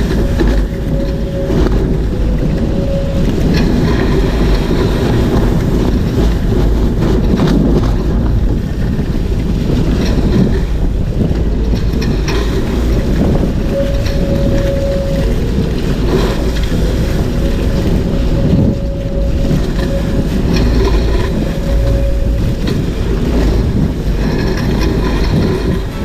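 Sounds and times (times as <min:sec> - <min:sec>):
water rushing along hulls: 0:00.0 - 0:26.0
wind rushing on microphone: 0:00.0 - 0:26.0.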